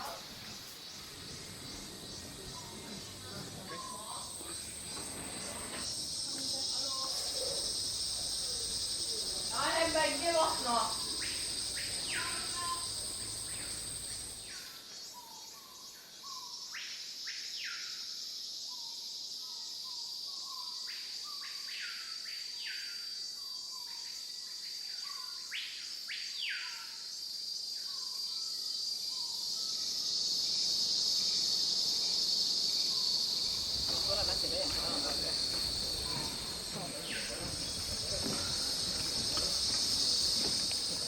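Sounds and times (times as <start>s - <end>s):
bird calling: 0.0s - 14.6s, 32.8s - 41.0s
insects droning: 0.0s - 41.0s.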